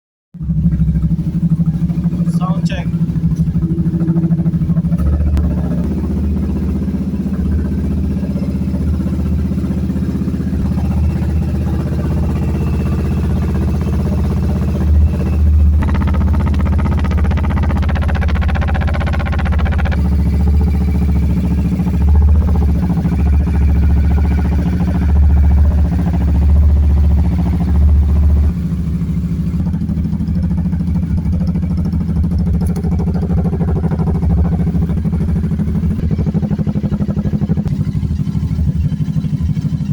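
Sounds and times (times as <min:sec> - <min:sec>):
motorcycle engine idling: 0:00.4 - 0:39.9
throttle blips: 0:14.8 - 0:20.1.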